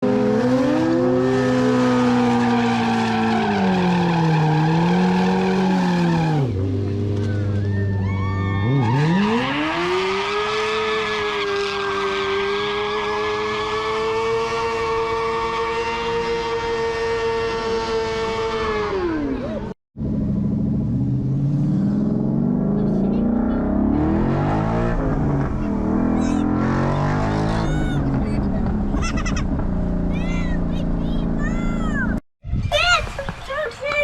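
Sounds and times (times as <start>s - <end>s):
motorcycle engine revving high: 8.6s - 32.2s.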